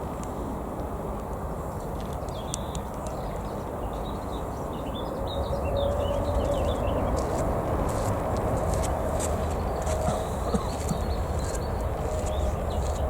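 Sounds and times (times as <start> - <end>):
distant jet aircraft rumbling: 0.0 - 13.0
small birds chirping: 1.6 - 7.4, 9.4 - 13.0.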